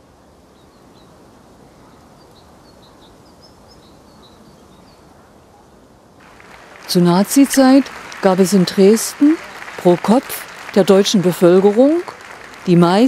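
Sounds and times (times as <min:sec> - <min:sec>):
outdoor background noise: 0:00.0 - 0:13.0
small birds chirping: 0:00.5 - 0:06.6.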